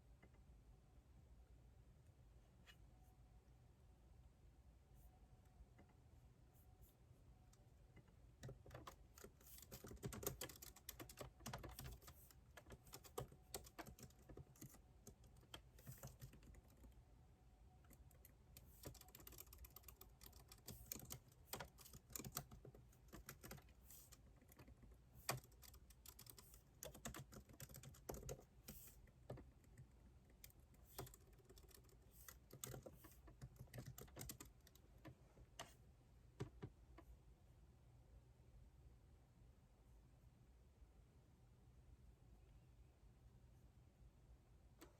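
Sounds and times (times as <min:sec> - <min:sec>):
keyboard keys clicking: 0:08.4 - 0:17.0, 0:17.8 - 0:35.8.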